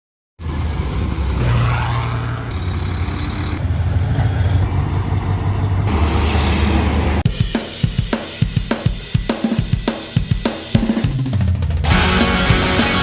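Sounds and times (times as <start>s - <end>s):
diesel truck engine humming: 0.4s - 7.2s.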